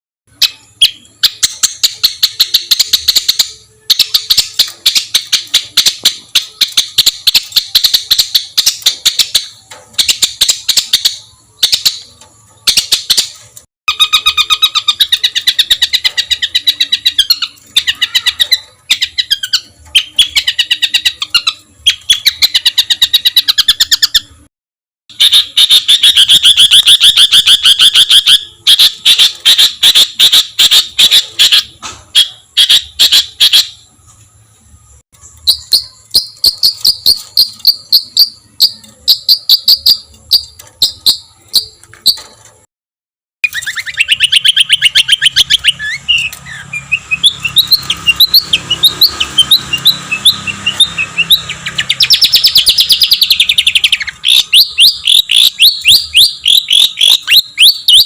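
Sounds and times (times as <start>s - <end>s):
songbird rapid harsh trills: 0.3s - 24.4s, 25.1s - 33.8s, 35.2s - 42.4s, 43.4s - 58.0s.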